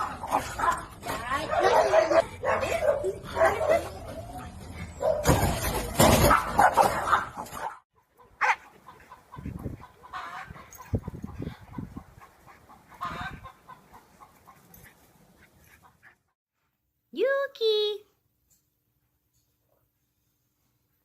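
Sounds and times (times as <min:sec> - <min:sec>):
dog barking and yelping: 0:00.0 - 0:10.9.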